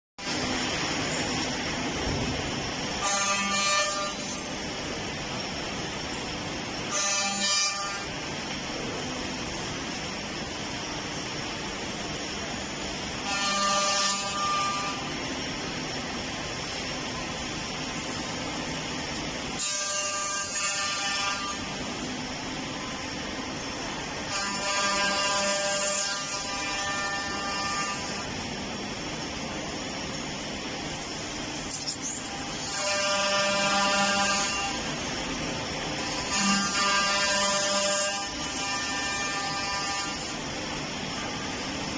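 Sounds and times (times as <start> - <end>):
high-pitched spindle whine: 2.9 - 4.8, 13.2 - 15.2, 24.1 - 28.4, 31.6 - 35.1, 36.0 - 40.4.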